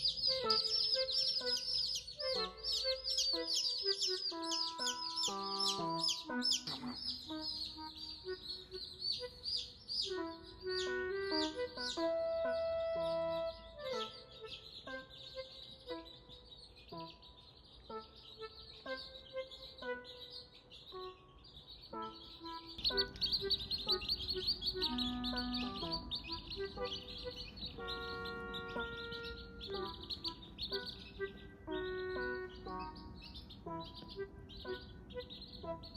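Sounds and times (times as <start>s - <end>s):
chicks cheeping: 0.0s - 35.9s
simple melody background music: 0.0s - 35.9s.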